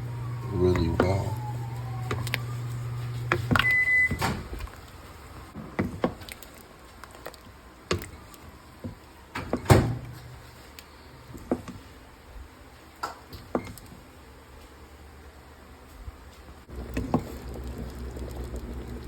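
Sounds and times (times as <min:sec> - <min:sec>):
low hum: 0:00.0 - 0:04.1, 0:16.7 - 0:19.0.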